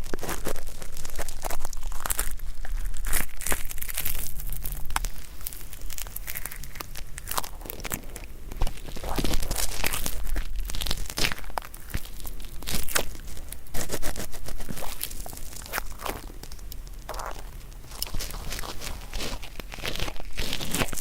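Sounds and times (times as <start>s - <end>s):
ear pick scraping earwax: 0.0s - 21.0s.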